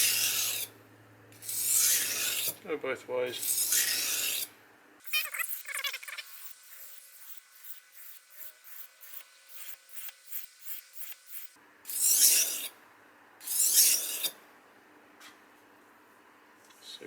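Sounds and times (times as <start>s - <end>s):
knife scraping on whetstone: 0.0s - 0.7s, 1.4s - 2.6s, 3.4s - 4.5s, 5.2s - 12.8s, 13.4s - 14.4s.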